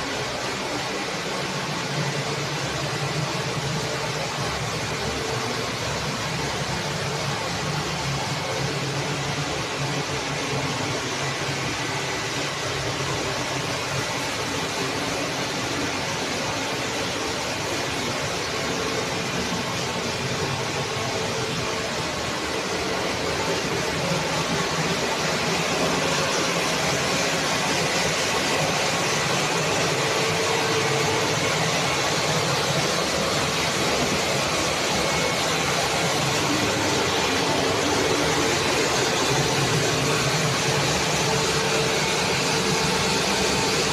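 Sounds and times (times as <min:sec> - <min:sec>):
machinery roar: 0:00.0 - 0:43.9.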